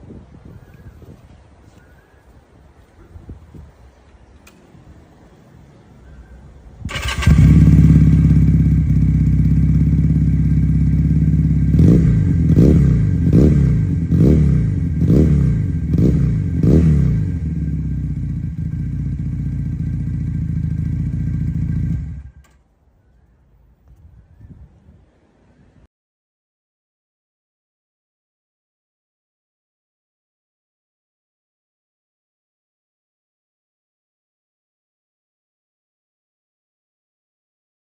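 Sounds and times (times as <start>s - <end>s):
motorcycle engine revving: 6.9s - 22.6s.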